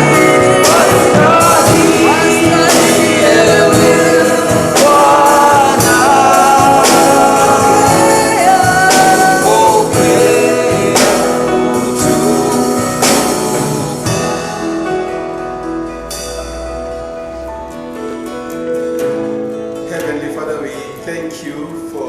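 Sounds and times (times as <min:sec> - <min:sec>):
voices singing gospel song: 0:00.0 - 0:15.0
band playing: 0:00.0 - 0:22.0
cymbal crashes: 0:12.0 - 0:17.4.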